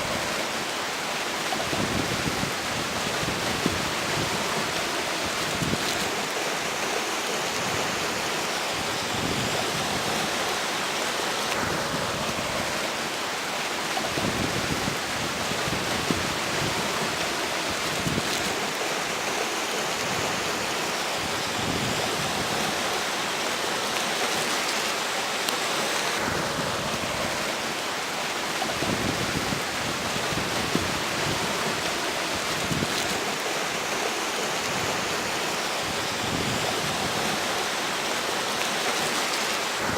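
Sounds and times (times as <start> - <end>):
river water rushing: 0.0 - 39.9
wind buffeting microphone: 14.0 - 18.7, 28.6 - 33.3.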